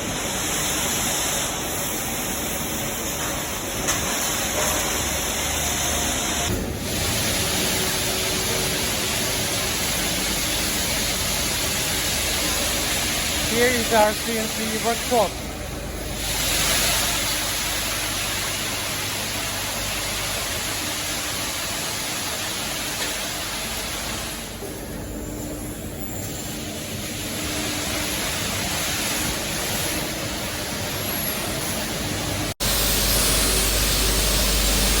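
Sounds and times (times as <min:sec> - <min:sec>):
machines hissing in workshop: 0:00.0 - 0:35.0
harsh hiss: 0:06.8 - 0:24.6, 0:32.6 - 0:35.0.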